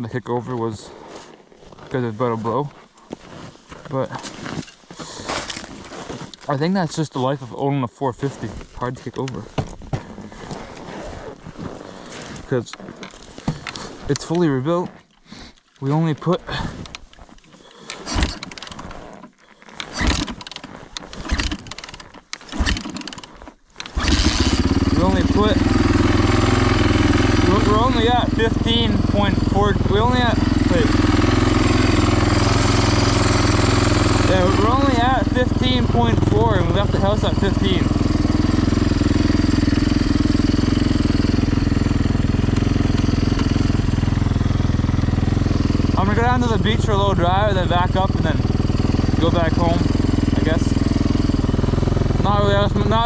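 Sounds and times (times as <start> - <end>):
dirt bike kick-start: 3.9 - 7.3, 8.3 - 53.0
engine turning over: 17.6 - 53.0.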